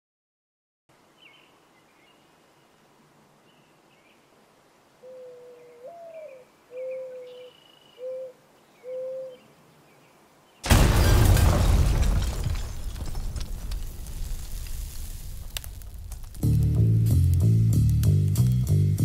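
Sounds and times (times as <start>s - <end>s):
dove cooing: 5.0s - 9.4s
small birds chirping: 5.0s - 10.7s.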